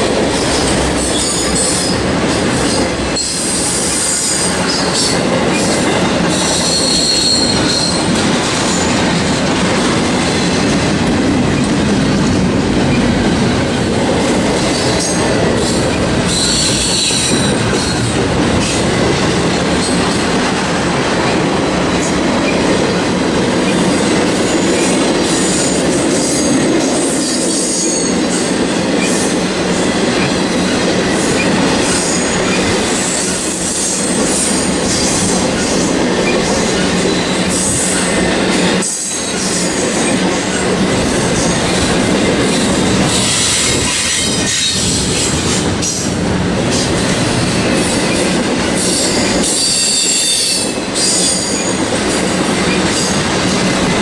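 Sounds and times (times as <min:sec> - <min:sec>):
freight train wheels rumbling: 0:00.0 - 0:54.0
high-pitched wheel squeal: 0:06.3 - 0:08.1, 0:16.2 - 0:18.0.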